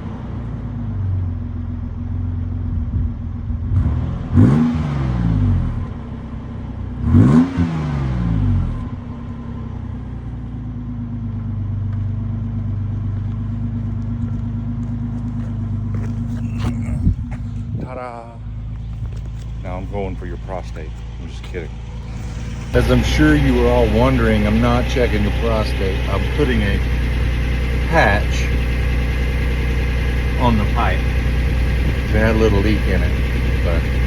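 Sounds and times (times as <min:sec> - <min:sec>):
car engine idling and revving: 0:00.0 - 0:34.0.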